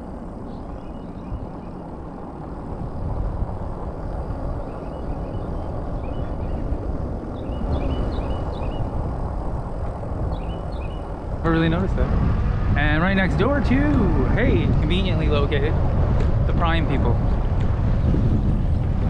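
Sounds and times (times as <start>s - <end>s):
road noise: 0.0s - 19.0s
wind rumble: 0.0s - 19.0s.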